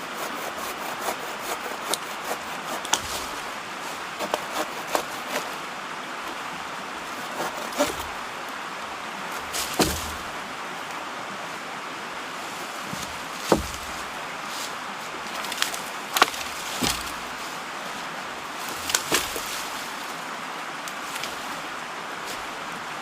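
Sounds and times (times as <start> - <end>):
mountain stream rushing: 0.0 - 23.0
wood knocks and cracks: 9.5 - 10.4, 12.9 - 14.1, 15.4 - 17.3, 18.7 - 19.5.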